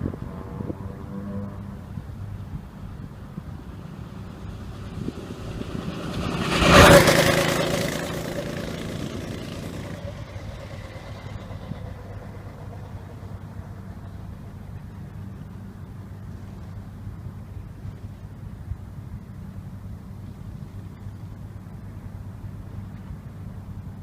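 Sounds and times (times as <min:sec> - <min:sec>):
go-kart engine passing by: 0:00.0 - 0:14.8.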